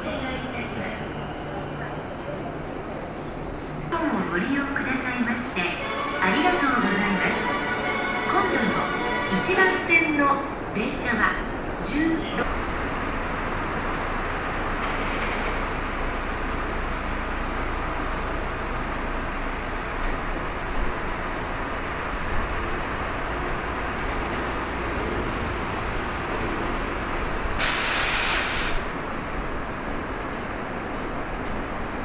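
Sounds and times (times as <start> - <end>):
train rumbling past: 0.0 - 32.0
air brake hiss: 26.9 - 29.0.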